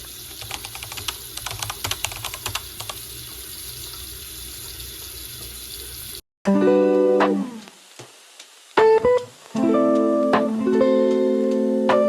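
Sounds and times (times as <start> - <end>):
rapid irregular clicking: 0.3 - 3.0
steady hiss: 6.9 - 12.0.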